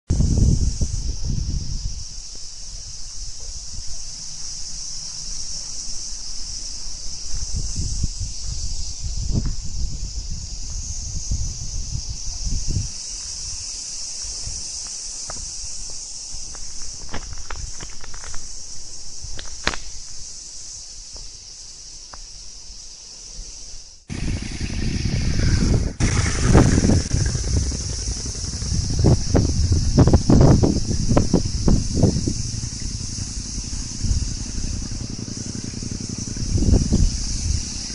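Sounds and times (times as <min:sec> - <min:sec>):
wind rumble on microphone: 0:00.1 - 0:04.1, 0:06.4 - 0:18.4, 0:24.1 - 0:37.9
insect chorus: 0:00.1 - 0:37.9
low rumble: 0:24.1 - 0:37.9.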